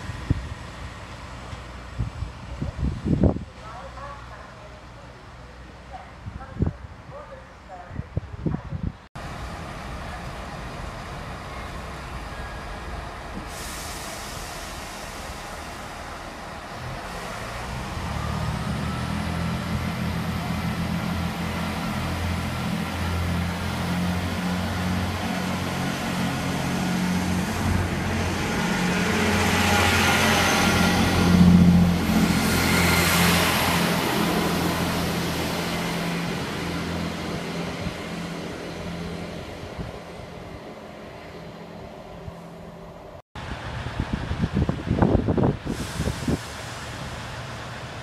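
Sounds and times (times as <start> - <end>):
train engine drone: 0.0 - 6.4, 9.2 - 48.0
train wheels rushing on rails: 9.2 - 41.1, 43.4 - 48.0.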